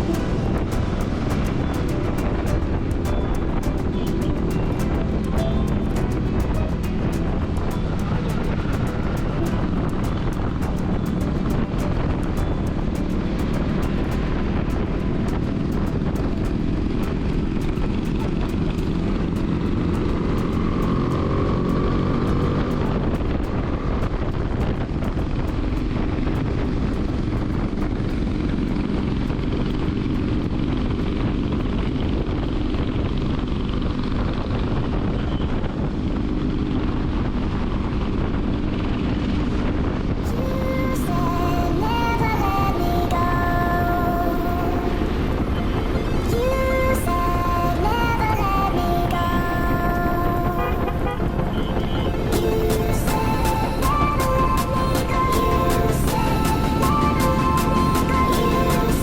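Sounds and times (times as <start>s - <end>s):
motorcycle engine running: 0.0s - 40.6s
wind and road noise: 0.0s - 59.0s.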